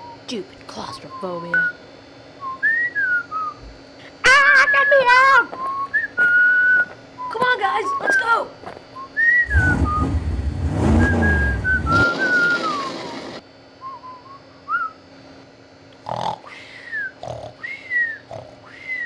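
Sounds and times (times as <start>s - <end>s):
person whistling a tune: 2.4s - 3.6s, 5.6s - 8.2s, 9.0s - 10.2s, 10.8s - 15.0s
loud low rumble: 9.5s - 13.4s.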